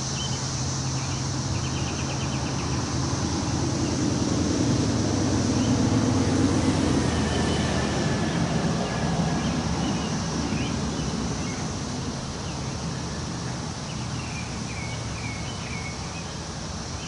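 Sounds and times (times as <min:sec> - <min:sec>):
small birds chirping: 0:00.0 - 0:04.2, 0:07.2 - 0:17.0
low engine hum: 0:00.0 - 0:17.0
wind through trees: 0:00.0 - 0:17.0.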